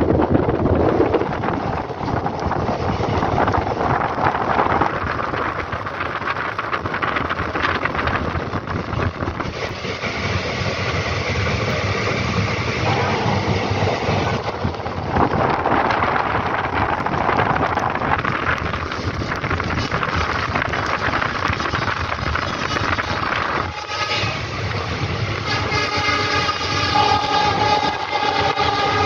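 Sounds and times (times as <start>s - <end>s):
train wheels clattering on rails: 0.0s - 29.0s
wind rushing over microphone: 0.0s - 29.0s.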